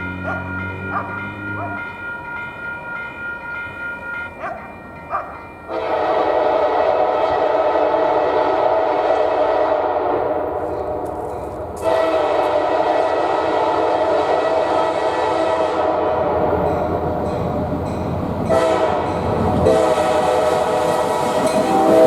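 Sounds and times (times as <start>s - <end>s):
locomotive air horn blast: 5.7s - 10.5s, 11.8s - 16.6s, 18.4s - 22.0s.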